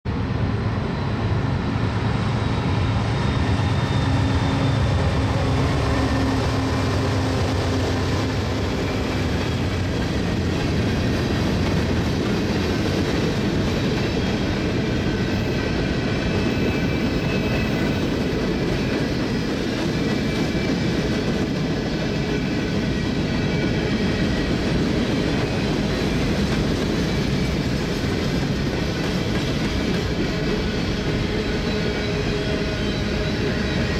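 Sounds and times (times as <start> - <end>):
locomotive engine drone: 0.1 - 18.4
wheels rumbling on rail: 0.1 - 33.9
faint high wheel squeal: 2.3 - 9.7, 29.8 - 33.9.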